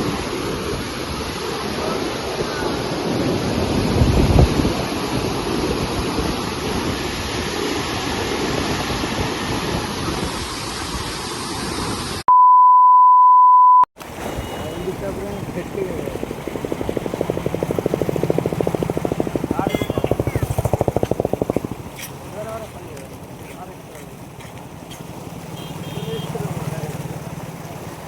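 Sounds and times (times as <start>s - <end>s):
wind gust on microphone: 0.0s - 12.2s, 14.0s - 23.4s
high-pitched beep: 12.3s - 14.8s
floodwater rushing: 14.0s - 28.0s.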